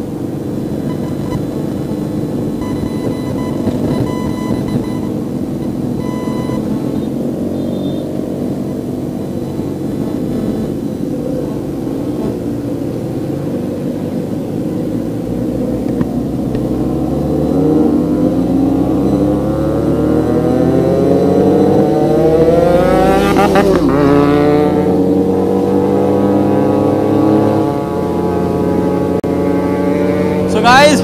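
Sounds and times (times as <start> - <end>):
vehicle engine running: 0.0 - 31.0
short electronic beeps: 0.8 - 1.5, 2.6 - 8.1, 21.0 - 22.7.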